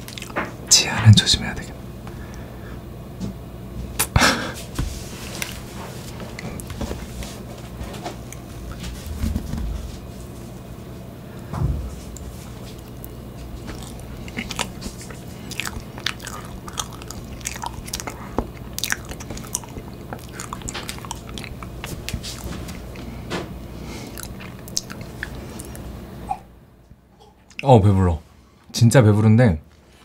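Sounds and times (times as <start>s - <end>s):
wet mouth chewing sounds: 0.0s - 0.5s, 12.1s - 23.2s, 23.8s - 26.4s
steady low hum: 0.0s - 30.0s.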